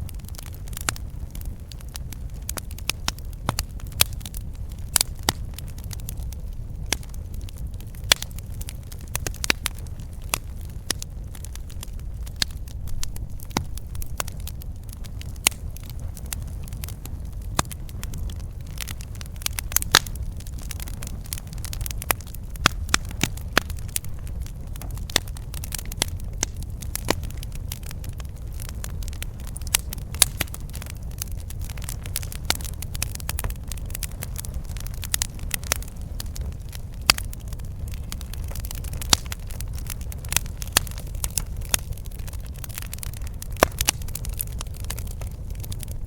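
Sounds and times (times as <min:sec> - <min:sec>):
campfire crackling and popping: 0:00.0 - 0:46.0
low fire rumble: 0:00.0 - 0:46.0.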